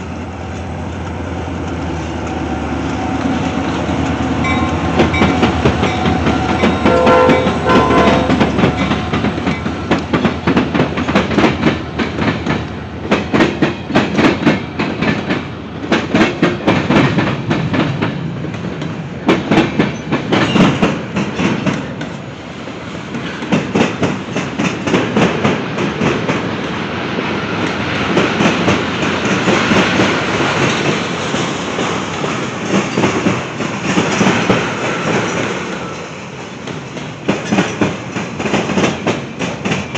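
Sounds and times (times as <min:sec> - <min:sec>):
train rumble: 0:00.0 - 0:39.9
train wheels clacking on rail joints: 0:00.0 - 0:39.9
train horn: 0:04.3 - 0:09.4.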